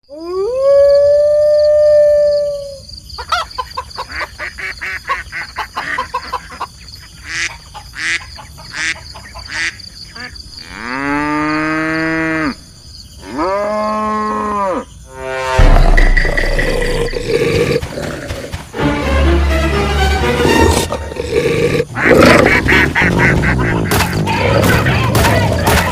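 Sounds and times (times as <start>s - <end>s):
loud noisy stretch: 15.3s - 17.9s.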